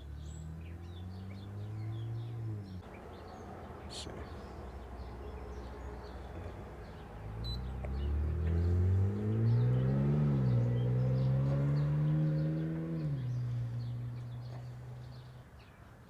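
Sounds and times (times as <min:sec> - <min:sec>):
engine revving: 0:00.0 - 0:02.8, 0:06.9 - 0:15.3.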